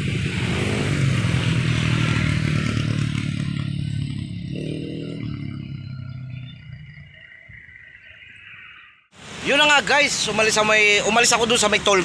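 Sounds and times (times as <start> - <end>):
vehicle engine running: 0.0 - 7.8
tyre and road noise: 0.0 - 12.0.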